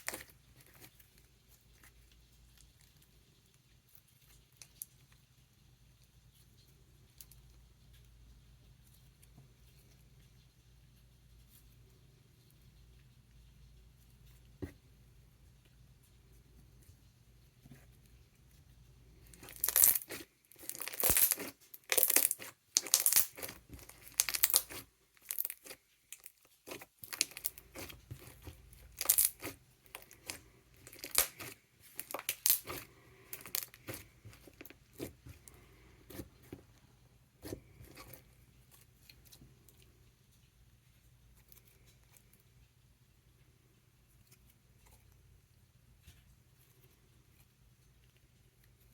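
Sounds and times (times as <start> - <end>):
slime clicking and popping: 19.4 - 28.4, 29.0 - 34.4.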